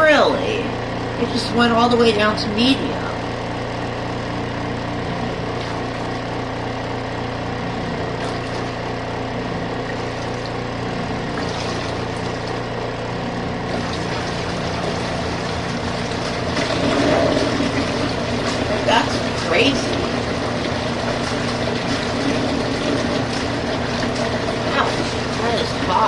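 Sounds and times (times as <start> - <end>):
washing machine motor hum: 0.0 - 26.0
water sloshing in tub: 1.0 - 26.0.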